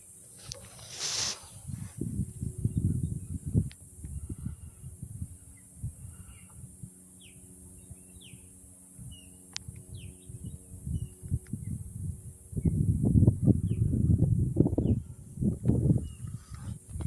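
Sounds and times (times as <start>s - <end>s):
faint low hum: 0.0s - 17.0s
wind gusts on microphone: 0.4s - 17.0s
birds chirping: 2.6s - 11.9s, 14.7s - 15.2s.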